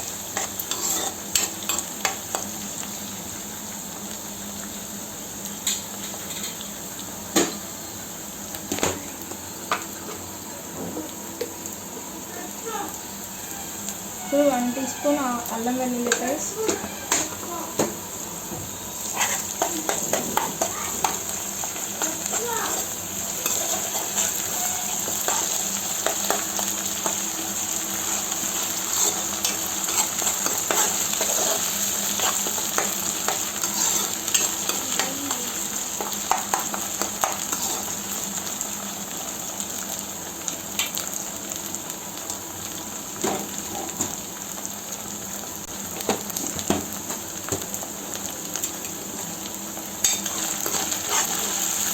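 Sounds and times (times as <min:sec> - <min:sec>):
onions sizzling in oil: 0:00.0 - 0:51.9
utensil scraping a pan: 0:00.4 - 0:01.9, 0:19.0 - 0:26.4, 0:28.8 - 0:35.1, 0:50.0 - 0:51.8.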